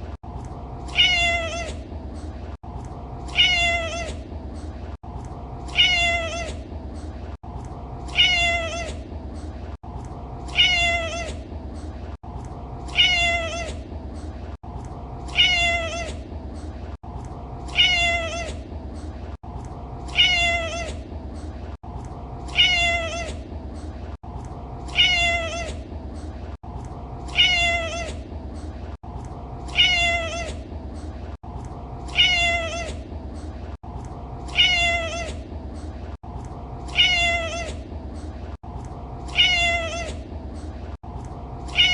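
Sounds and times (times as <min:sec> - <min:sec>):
cat meowing: 0:00.9 - 0:01.8, 0:03.3 - 0:04.2, 0:05.7 - 0:06.6, 0:08.1 - 0:09.0, 0:10.5 - 0:11.4, 0:12.9 - 0:13.8, 0:15.3 - 0:16.2, 0:17.7 - 0:18.6, 0:20.1 - 0:21.0, 0:22.5 - 0:23.4, 0:24.9 - 0:25.8, 0:27.3 - 0:28.2, 0:29.7 - 0:30.6, 0:32.1 - 0:33.0, 0:34.5 - 0:35.4, 0:36.9 - 0:37.8, 0:39.3 - 0:40.2, 0:41.7 - 0:41.9.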